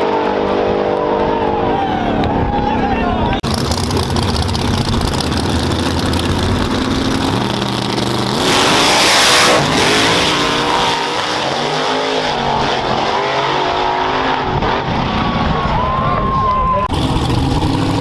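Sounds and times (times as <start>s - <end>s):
loud rush of noise: 0.0s - 18.0s
drag racing engine accelerating: 3.4s - 15.6s, 16.8s - 18.0s.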